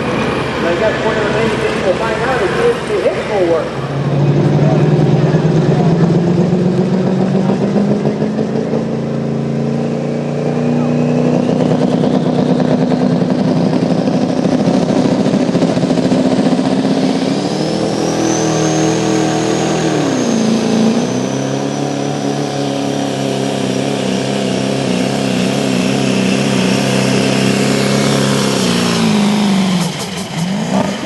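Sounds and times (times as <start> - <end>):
high whine: 0.0 - 22.9
truck engine running under load: 0.0 - 31.0.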